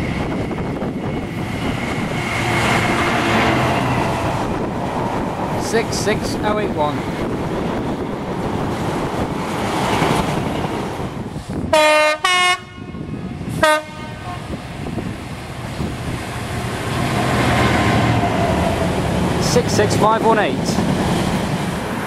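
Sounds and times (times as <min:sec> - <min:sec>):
diesel locomotive rumbling: 0:00.0 - 0:22.0
locomotive horn blasts: 0:11.7 - 0:14.5.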